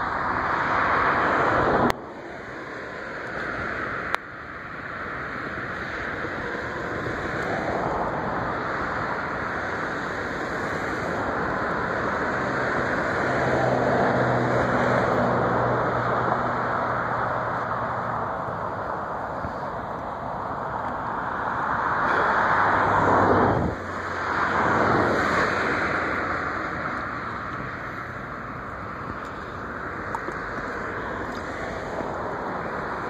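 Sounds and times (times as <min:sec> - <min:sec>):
jet engine rush: 0:00.0 - 0:33.0.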